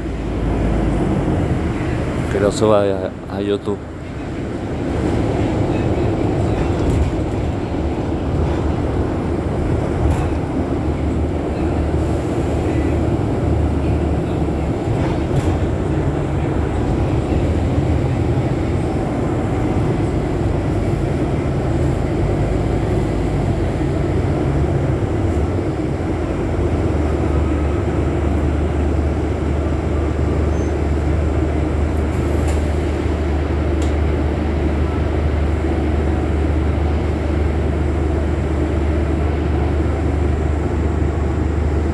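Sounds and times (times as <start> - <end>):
bus engine droning: 0.0 - 41.9
road noise: 0.0 - 41.9.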